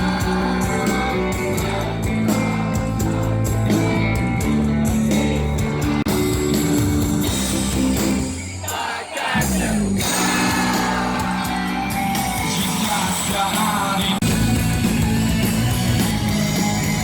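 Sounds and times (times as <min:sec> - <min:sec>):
rock music: 0:00.0 - 0:17.0
person singing: 0:08.7 - 0:14.3
electric guitar: 0:10.0 - 0:17.0.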